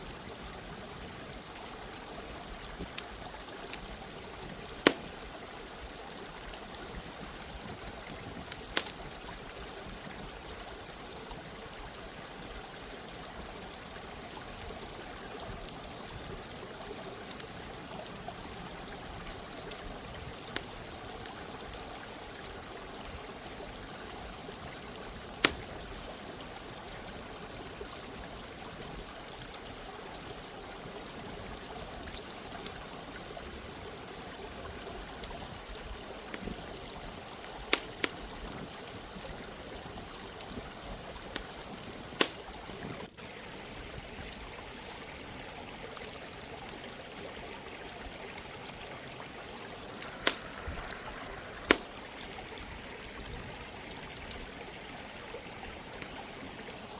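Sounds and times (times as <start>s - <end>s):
stream running water: 0.0s - 56.9s
campfire crackling and popping: 0.1s - 56.9s.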